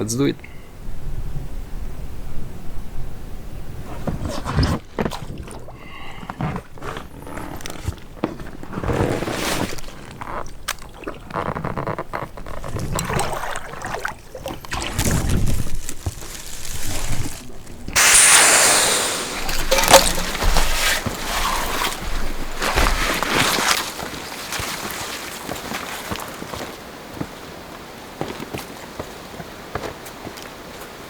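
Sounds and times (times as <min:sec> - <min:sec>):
water sloshing and gurgling: 0:03.8 - 0:26.6
knocks and rustles of raft: 0:03.8 - 0:27.4
loud rushing hiss: 0:18.0 - 0:22.2.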